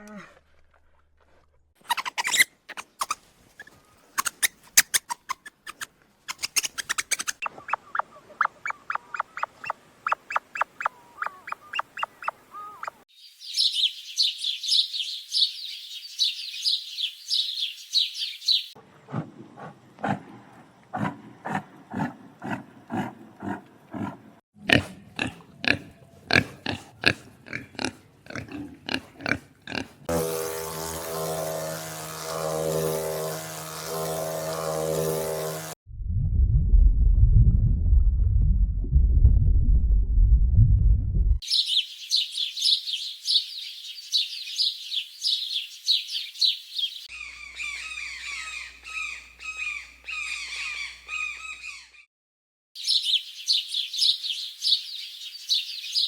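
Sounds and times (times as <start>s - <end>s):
rapid pulsing animal calls: 1.8s - 13.0s
fast high-pitched chirping: 1.9s - 3.2s, 4.2s - 18.7s.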